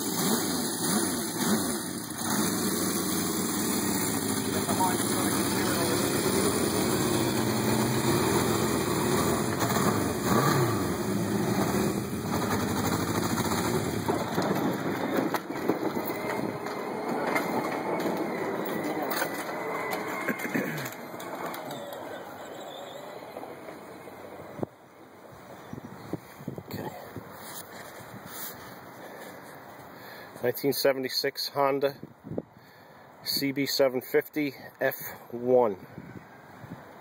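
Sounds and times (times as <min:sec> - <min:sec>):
motorcycle engine idling: 0:00.0 - 0:14.5.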